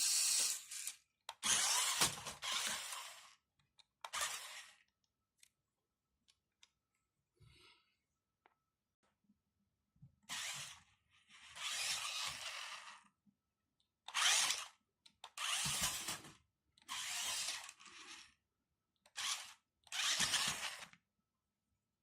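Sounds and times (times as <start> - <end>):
toy truck motor whirring: 0.0 - 4.9, 10.2 - 13.2, 14.0 - 18.4, 19.0 - 21.0.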